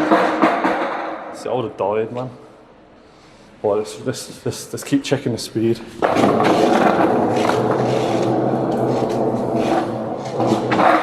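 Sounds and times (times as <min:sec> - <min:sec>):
skateboard clatter: 0:06.0 - 0:11.0
skateboard wheels rolling on wet pavement: 0:06.0 - 0:11.0.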